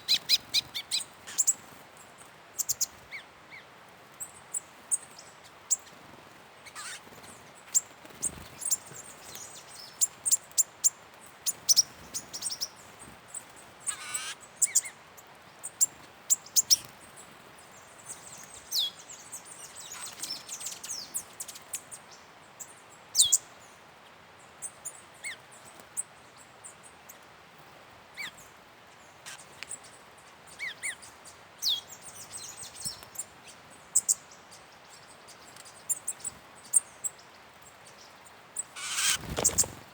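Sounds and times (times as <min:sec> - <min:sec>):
birds chirping: 0:06.6 - 0:10.4, 0:11.5 - 0:15.0, 0:28.2 - 0:39.9
wavering bird trill: 0:38.8 - 0:39.6.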